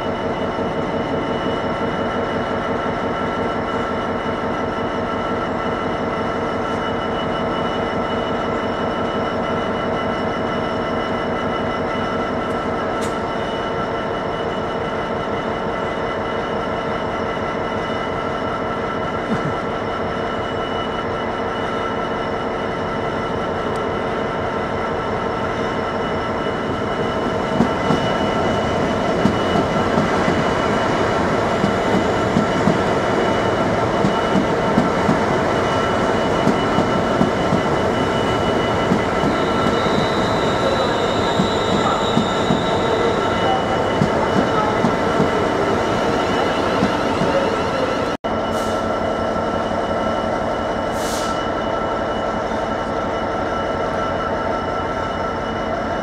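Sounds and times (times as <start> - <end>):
diesel locomotive running: 0.0 - 56.0
freight train low hum: 0.0 - 56.0
thin wheel squeal: 38.0 - 48.0.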